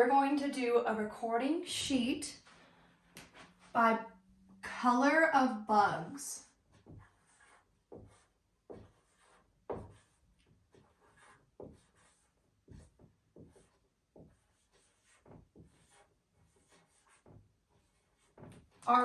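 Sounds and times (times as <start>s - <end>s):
marker scratching on paper: 6.4s - 19.0s.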